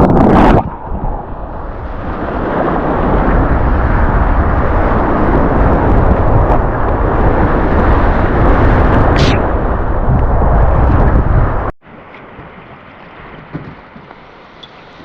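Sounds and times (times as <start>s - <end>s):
deep rumble: 0.0s - 11.8s.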